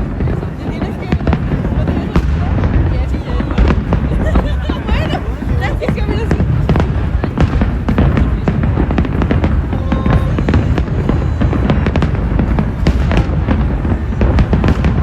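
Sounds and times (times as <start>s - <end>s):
fireworks booming and crackling: 0.0s - 15.0s.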